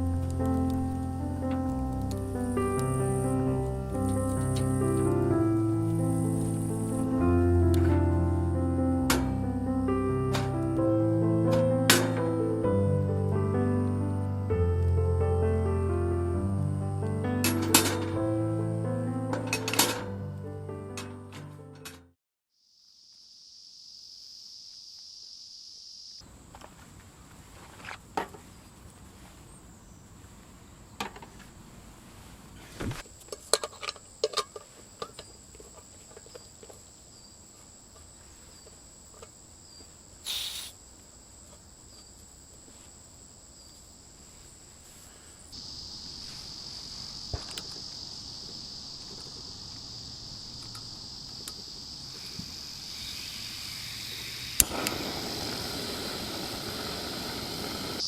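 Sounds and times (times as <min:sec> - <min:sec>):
crickets trilling: 0:01.8 - 0:07.4, 0:22.6 - 0:26.5, 0:33.1 - 0:58.0.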